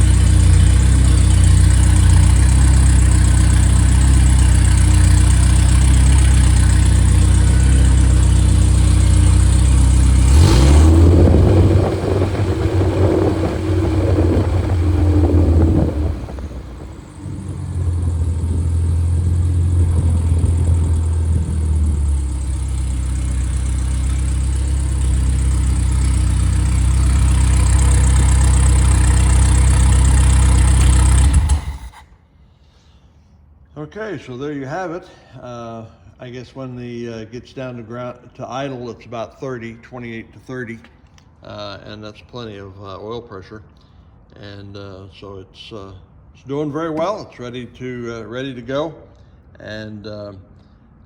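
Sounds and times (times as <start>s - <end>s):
car engine revving: 0.0s - 31.9s.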